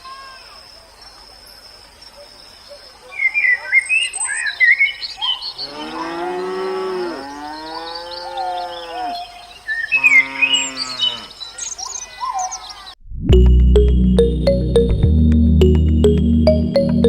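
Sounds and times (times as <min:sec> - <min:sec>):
small birds chirping: 0:00.4 - 0:13.0
cow mooing: 0:05.6 - 0:09.3, 0:09.9 - 0:11.3.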